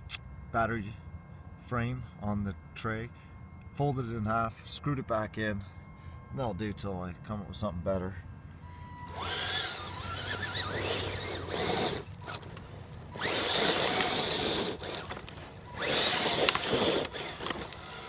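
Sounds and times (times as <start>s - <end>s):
toy truck electric motor whining: 8.6s - 18.0s.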